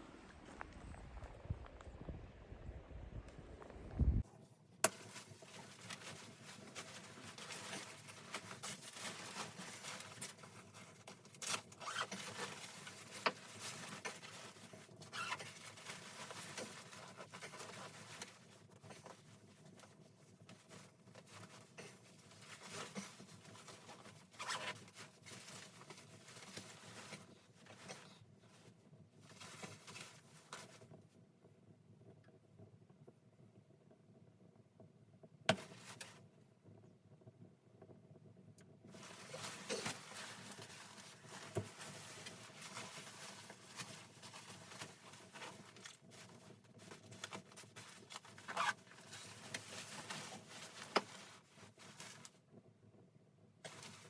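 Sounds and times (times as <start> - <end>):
low rumble: 0.0 - 4.2
quiet rustling: 4.2 - 31.6, 37.9 - 52.6, 53.6 - 54.0.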